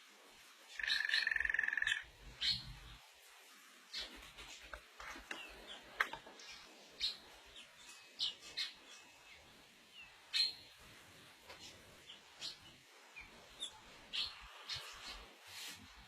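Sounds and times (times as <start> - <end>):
bird chirping: 0.7 - 3.1, 5.2 - 10.8, 11.5 - 15.3.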